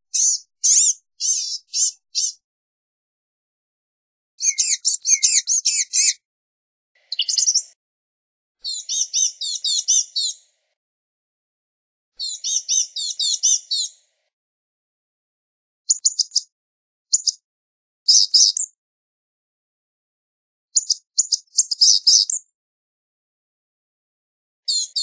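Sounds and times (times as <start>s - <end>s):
bird singing high thin notes: 7.1s - 7.7s.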